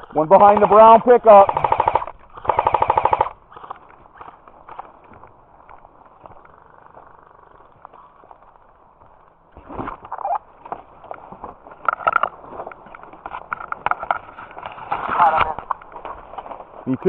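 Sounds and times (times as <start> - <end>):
airsoft guns firing: 0.4 - 3.4.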